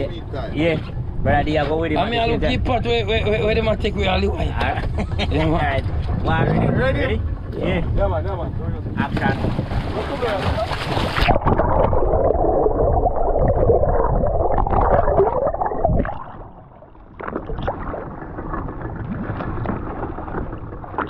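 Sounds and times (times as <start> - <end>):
underwater ambience: 0.0 - 21.0
rush of bubbles underwater: 10.8 - 21.0.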